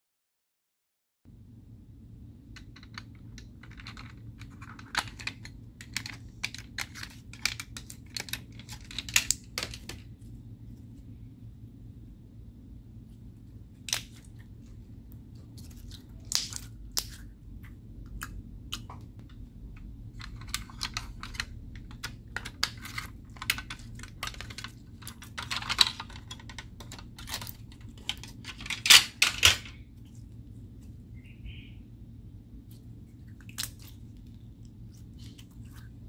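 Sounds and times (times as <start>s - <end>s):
sticky slime clicks and crackles: 15.6s - 17.3s.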